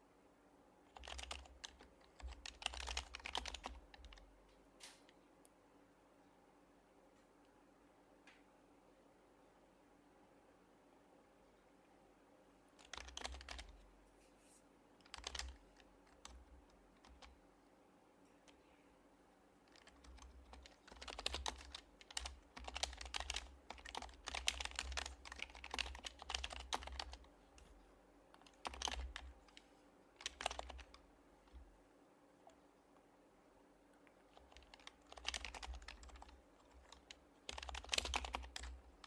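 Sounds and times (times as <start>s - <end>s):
keyboard typing: 0.9s - 5.0s, 12.8s - 13.8s, 15.0s - 17.4s, 19.7s - 31.7s, 34.3s - 39.0s.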